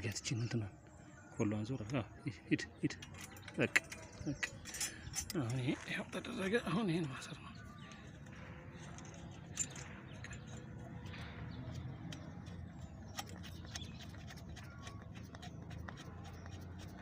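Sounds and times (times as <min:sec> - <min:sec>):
hand tools clicking on metal parts: 0:02.9 - 0:07.2, 0:08.0 - 0:17.0.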